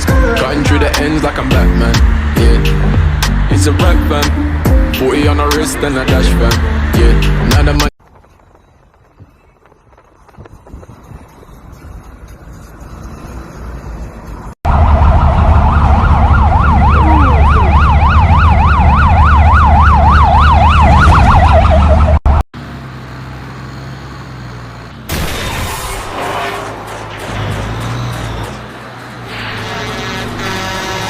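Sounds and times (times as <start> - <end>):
emergency vehicle yelp siren: 14.6 - 22.4.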